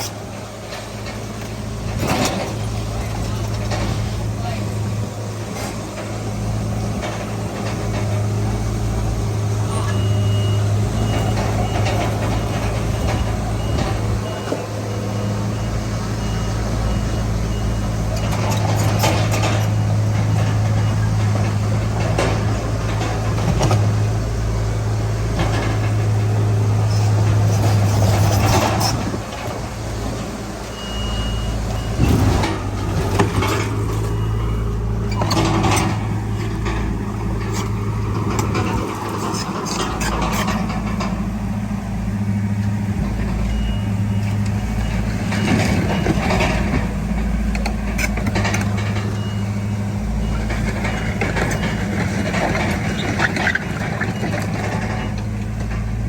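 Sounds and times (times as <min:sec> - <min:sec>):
bulldozer diesel engine running: 0:00.0 - 0:56.0
clanks and scraping of soil: 0:00.0 - 0:56.0
reversing alarm beeping: 0:09.6 - 0:21.1, 0:30.6 - 0:36.6, 0:43.4 - 0:46.7, 0:48.9 - 0:52.4.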